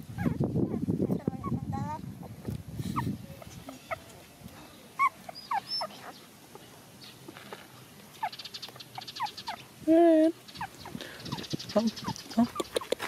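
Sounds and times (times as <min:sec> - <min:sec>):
puppies squeaking and whimpering: 0:00.0 - 0:04.2, 0:05.0 - 0:06.3, 0:08.2 - 0:09.7, 0:10.4 - 0:13.0
puppy whining: 0:00.1 - 0:04.1, 0:05.0 - 0:06.2, 0:09.0 - 0:09.6.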